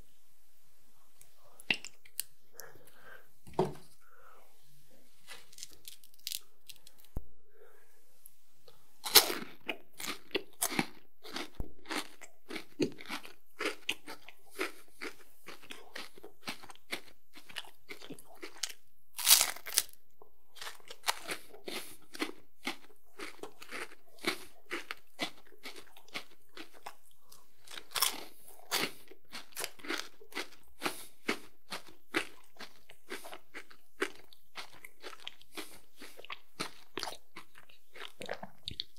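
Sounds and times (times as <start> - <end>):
crunching and chewing biscuit: 5.2 - 7.2, 9.0 - 38.9.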